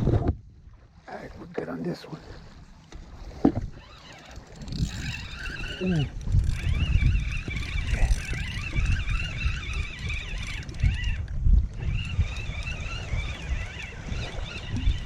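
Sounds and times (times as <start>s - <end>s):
wind rumble: 2.2s - 15.0s
microphone handling noise: 3.3s - 3.8s.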